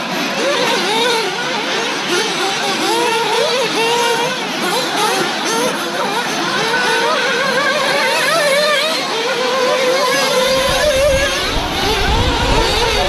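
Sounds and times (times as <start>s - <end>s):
rc car engines whining: 0.0s - 13.0s.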